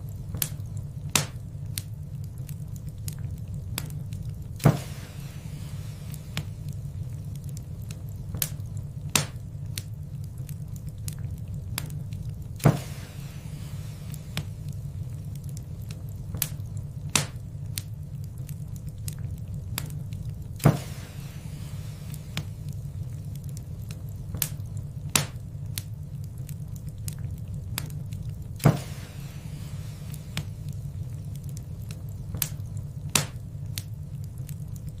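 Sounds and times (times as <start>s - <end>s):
low rumble: 0.0s - 35.0s
wood fire crackling: 0.0s - 35.0s
sharp loud pops of fire: 0.3s - 1.9s, 3.8s - 6.7s, 8.3s - 9.9s, 12.6s - 14.6s, 16.3s - 17.9s, 20.6s - 22.6s, 24.3s - 25.9s, 28.6s - 30.6s, 32.3s - 33.9s.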